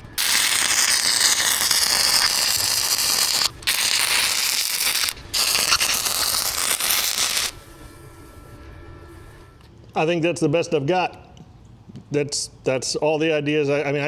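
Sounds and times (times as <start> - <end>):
arc welder crackling: 0.0 - 7.6.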